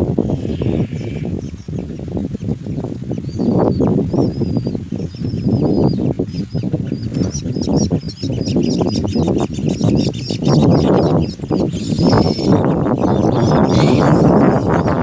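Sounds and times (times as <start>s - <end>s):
baby birds chirping: 3.2s - 15.0s.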